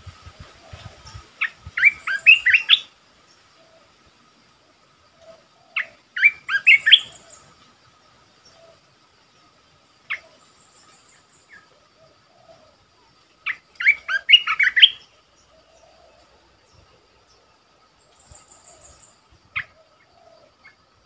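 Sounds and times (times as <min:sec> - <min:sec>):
faint bird chirps: 0:00.0 - 0:21.0
insects humming: 0:00.0 - 0:21.0
bird singing chirpy phrases: 0:01.0 - 0:02.8, 0:05.6 - 0:07.5, 0:13.4 - 0:16.0.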